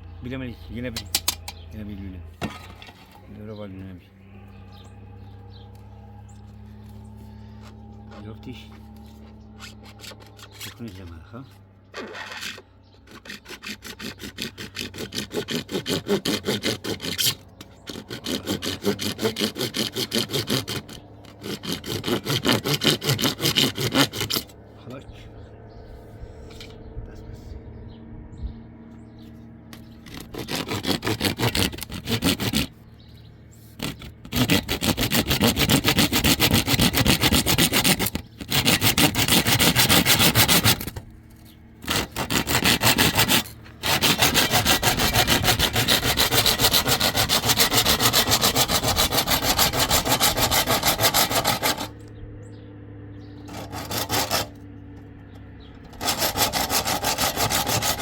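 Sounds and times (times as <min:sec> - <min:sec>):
sawing through hard material: 0:08.0 - 0:24.6, 0:29.7 - 0:52.0, 0:53.4 - 0:54.6, 0:55.8 - 0:58.0.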